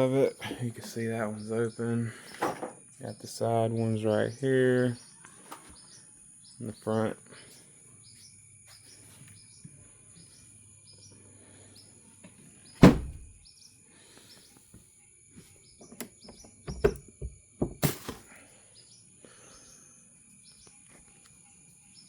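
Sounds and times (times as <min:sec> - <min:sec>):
bird chirping: 0:00.9 - 0:17.7, 0:18.6 - 0:22.0
knocks and thuds on boat fittings: 0:12.8 - 0:13.4, 0:15.8 - 0:17.9
insect drone: 0:13.4 - 0:22.0.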